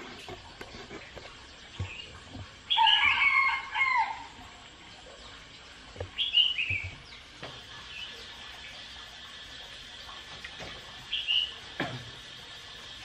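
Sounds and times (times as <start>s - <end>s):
faint outdoor background: 0.0s - 13.0s
birds chirping: 4.8s - 13.0s.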